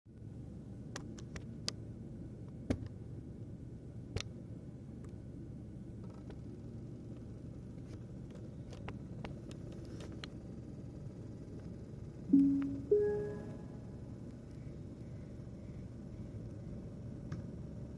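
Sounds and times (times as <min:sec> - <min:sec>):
loud pitched note: 0:12.3 - 0:13.9
music: 0:12.3 - 0:13.9.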